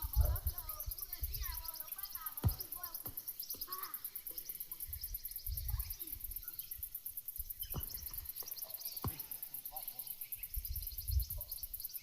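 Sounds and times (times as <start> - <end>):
wind rumble on microphone: 0.0 - 1.6, 4.9 - 6.0, 10.5 - 11.7
birds chirping: 0.0 - 12.0
insect high pulsing: 0.0 - 12.0.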